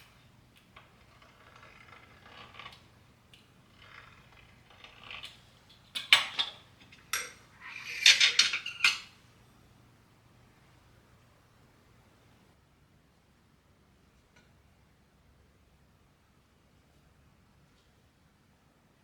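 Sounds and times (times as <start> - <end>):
kitchenware clinking and clattering: 6.0 - 9.2.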